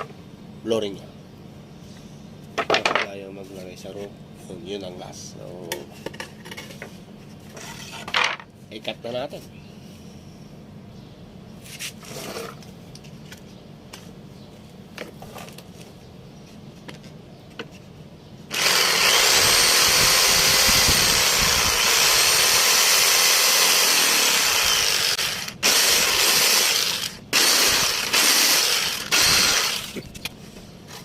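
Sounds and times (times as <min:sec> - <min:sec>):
power tool cutting wood: 0:18.5 - 0:30.0.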